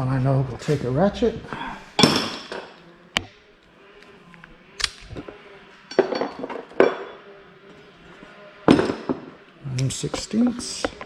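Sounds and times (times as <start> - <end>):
metal hand tools clinking: 4.9 - 7.3.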